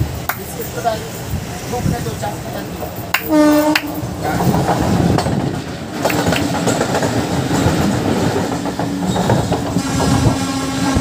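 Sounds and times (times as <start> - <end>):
wheels clicking over rail joints: 0.0 - 10.4
train rumbling past: 0.0 - 11.0
locomotive horn blast: 3.2 - 4.1, 9.8 - 11.0.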